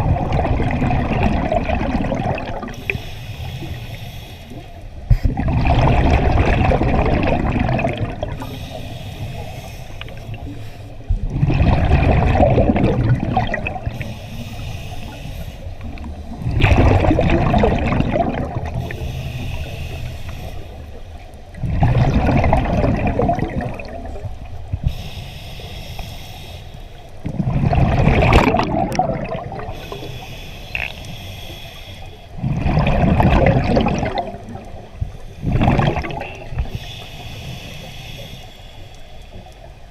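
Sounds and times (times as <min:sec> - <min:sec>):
exhaled bubbles rushing: 0:00.0 - 0:02.9, 0:05.2 - 0:08.6, 0:11.2 - 0:14.0, 0:16.0 - 0:19.0, 0:21.5 - 0:24.7, 0:27.2 - 0:30.1, 0:32.4 - 0:36.8
regulator hiss: 0:02.8 - 0:05.0, 0:08.4 - 0:11.1, 0:13.9 - 0:16.4, 0:18.8 - 0:21.2, 0:24.6 - 0:27.2, 0:29.8 - 0:32.4, 0:36.3 - 0:39.8.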